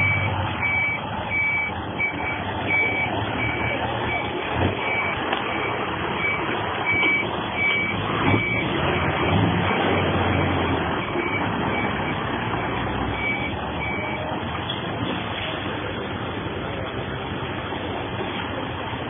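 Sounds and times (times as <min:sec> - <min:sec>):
truck reversing alarm beeping: 0:00.0 - 0:14.4
truck engine running: 0:00.0 - 0:19.0.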